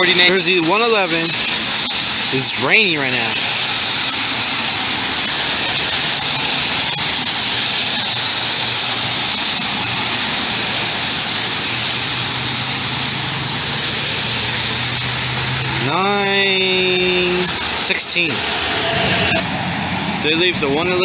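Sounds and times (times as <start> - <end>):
rain hiss: 0.0 - 20.2
diesel locomotive hum: 0.0 - 21.0
train wheels rushing over rails: 0.0 - 21.0.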